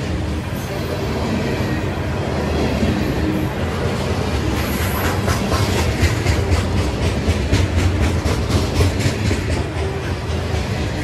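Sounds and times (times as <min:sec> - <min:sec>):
freight train rumbling past: 0:00.0 - 0:11.0
wheels clacking over rail joints: 0:02.6 - 0:11.0.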